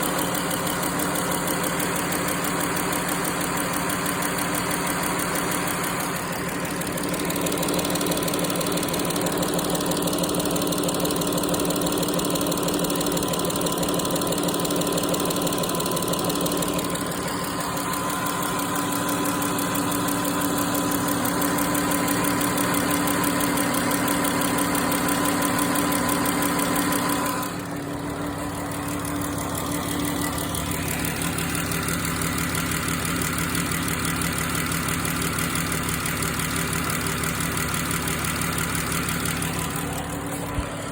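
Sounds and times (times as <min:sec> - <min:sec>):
engine running with rapid ticking: 0:00.0 - 0:40.9.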